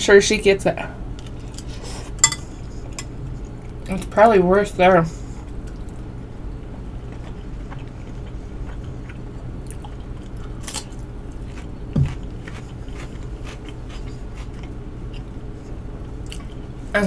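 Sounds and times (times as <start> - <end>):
steady low hum: 0.0 - 17.0
person chewing food: 5.4 - 16.8
crisp cucumber crunch: 7.0 - 15.3.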